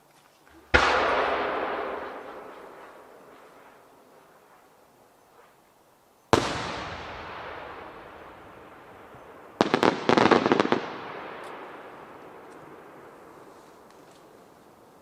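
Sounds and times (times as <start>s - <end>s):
firework cracks: 0.6s - 4.4s, 6.3s - 14.4s
firework bang echoing: 0.7s - 3.9s, 6.3s - 13.4s.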